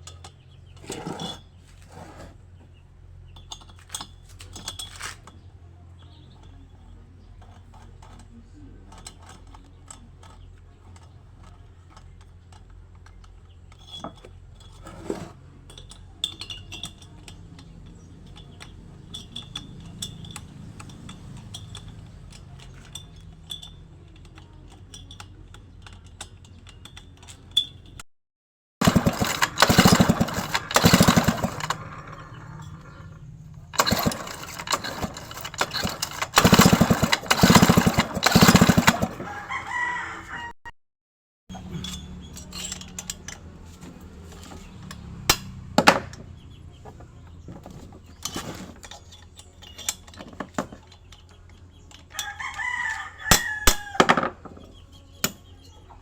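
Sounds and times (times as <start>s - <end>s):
light metallic clicks and clinks: 15.6s - 28.0s, 41.5s - 43.6s, 48.2s - 53.0s
small engine running: 28.8s - 40.0s, 41.5s - 49.1s.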